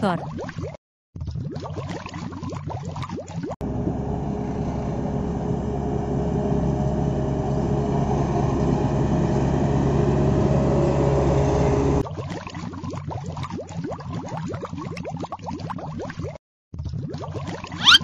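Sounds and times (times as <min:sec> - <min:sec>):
water sloshing and dripping: 0:00.0 - 0:03.6, 0:12.0 - 0:18.0
road roller diesel engine: 0:03.6 - 0:12.0.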